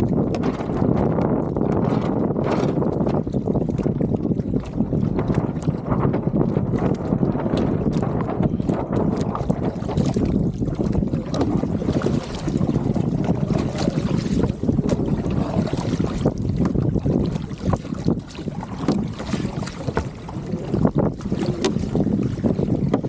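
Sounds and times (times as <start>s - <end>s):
water rushing along hull: 0.0s - 23.0s
wind buffeting microphone: 0.0s - 23.0s.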